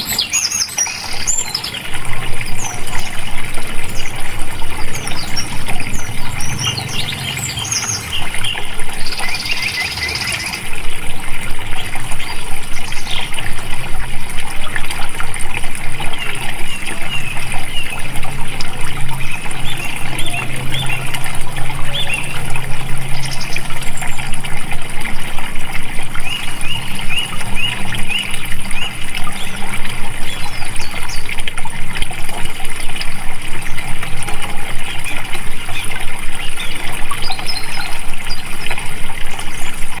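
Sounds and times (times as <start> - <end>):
birds chirping: 0.0 - 40.0
water trickling and splashing: 0.0 - 40.0.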